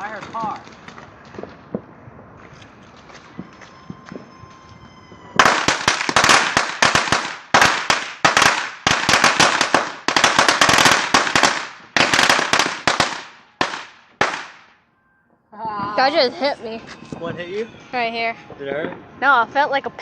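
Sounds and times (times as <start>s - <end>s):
firecrackers crackling: 0.0s - 14.8s.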